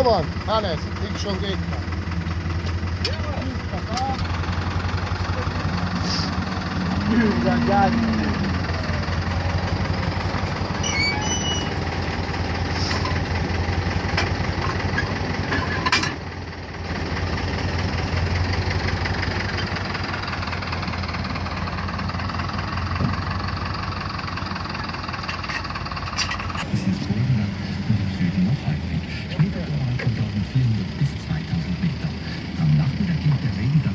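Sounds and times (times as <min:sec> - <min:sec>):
heavy machinery engine humming: 0:00.0 - 0:33.9.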